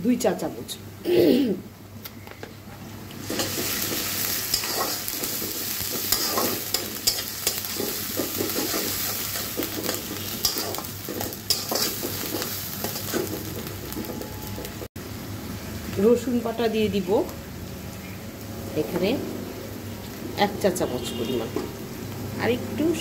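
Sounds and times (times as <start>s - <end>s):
onions sizzling in hot oil: 3.2s - 23.0s
metal spatula scraping pan: 3.3s - 13.4s.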